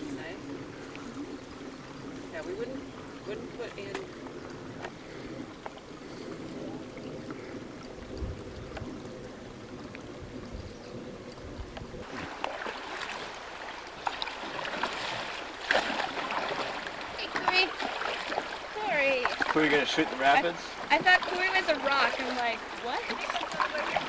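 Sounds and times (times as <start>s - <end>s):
water moving around canoe: 0.0s - 24.0s
water splashing: 0.0s - 24.0s.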